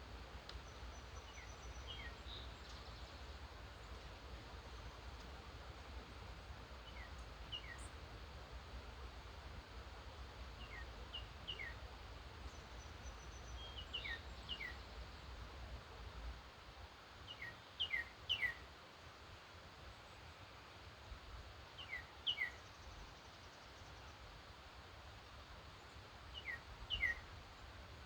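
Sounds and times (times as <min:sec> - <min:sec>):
songbird chirps: 0:00.4 - 0:05.4, 0:06.1 - 0:08.0, 0:10.5 - 0:15.4, 0:17.2 - 0:18.7, 0:21.7 - 0:24.2, 0:25.6 - 0:27.8.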